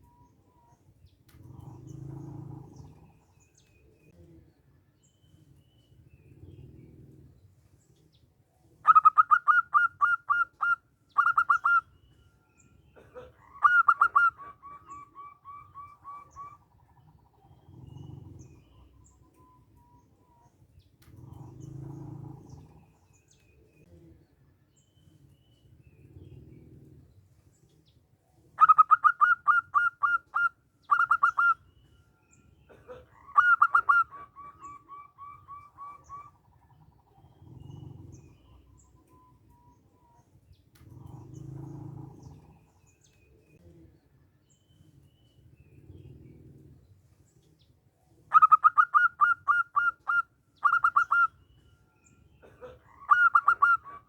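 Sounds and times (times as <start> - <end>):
dove cooing: 0.0 - 4.6, 5.3 - 12.2, 13.0 - 24.3, 25.0 - 44.0, 44.8 - 54.0.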